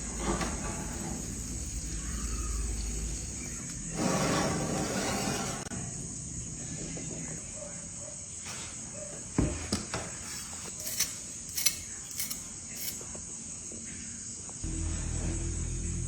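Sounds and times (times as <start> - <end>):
crickets chirring: 0.0 - 14.7.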